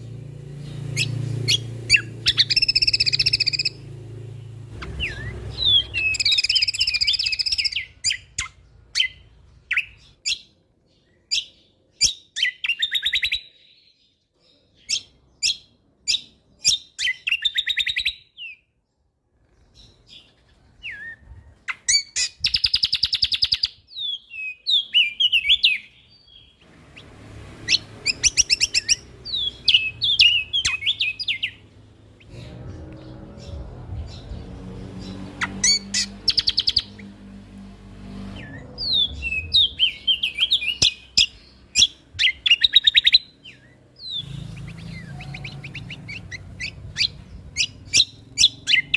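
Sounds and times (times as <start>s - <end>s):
songbird chirping and trilling: 0.0s - 48.9s.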